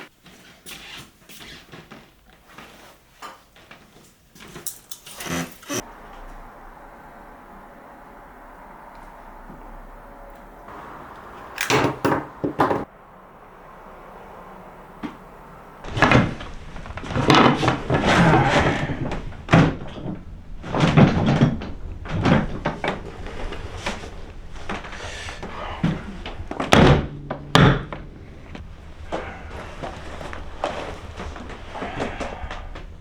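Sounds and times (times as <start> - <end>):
hard objects knocking and clattering: 11.6 - 12.9
rattling and scraping: 14.4 - 33.0.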